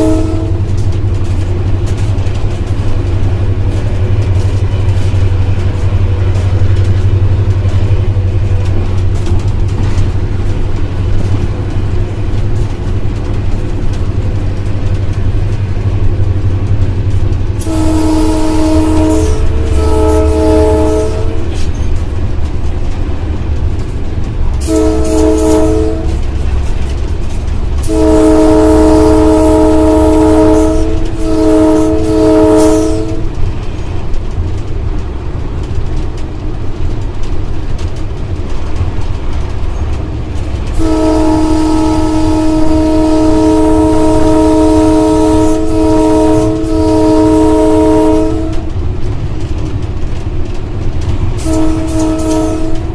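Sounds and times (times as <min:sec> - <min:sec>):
locomotive air horn blasts: 0:00.0 - 0:01.4, 0:17.6 - 0:21.7, 0:24.6 - 0:26.6, 0:27.8 - 0:33.3, 0:40.7 - 0:48.8, 0:51.4 - 0:52.9
locomotive engine rumble: 0:00.0 - 0:52.9.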